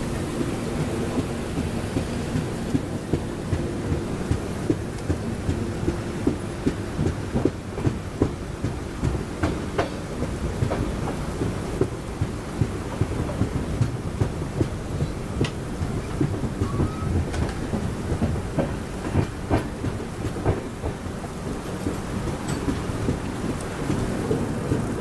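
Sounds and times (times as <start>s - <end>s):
train wheels rumbling on rail: 0.0s - 25.0s
rain hiss: 8.0s - 25.0s.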